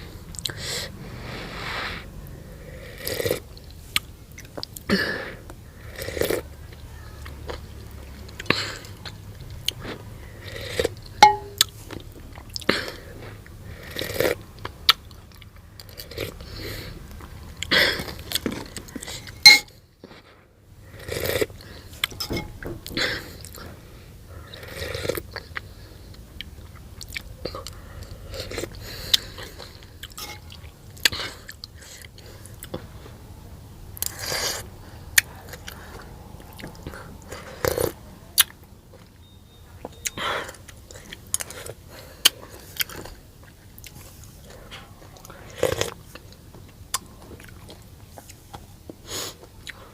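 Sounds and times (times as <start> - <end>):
crunchy chewing: 40.0 - 49.9.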